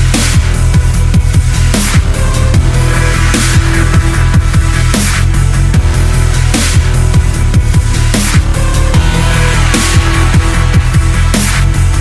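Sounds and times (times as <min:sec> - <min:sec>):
loud electronic music: 0:00.0 - 0:12.0
cymbal crash: 0:08.3 - 0:12.0.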